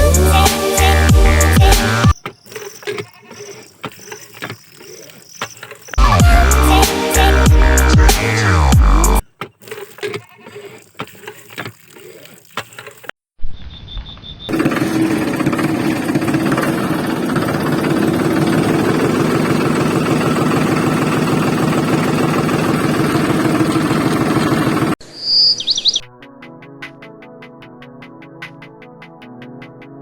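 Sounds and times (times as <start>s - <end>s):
tractor diesel engine running: 0.0s - 9.2s, 14.5s - 25.0s
bird chirping: 2.1s - 6.0s, 13.4s - 14.5s, 25.0s - 26.1s.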